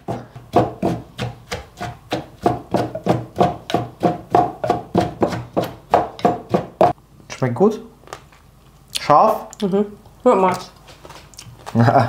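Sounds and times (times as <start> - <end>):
pestle pounding in mortar: 0.0 - 7.0.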